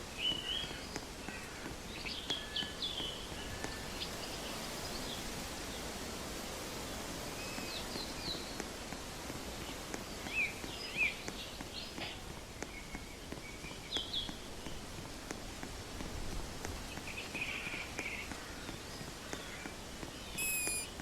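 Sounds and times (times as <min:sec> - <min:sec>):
background hiss: 0:00.0 - 0:21.0
birds chirping: 0:00.1 - 0:06.0, 0:16.7 - 0:21.0
faint ticks: 0:07.4 - 0:21.0.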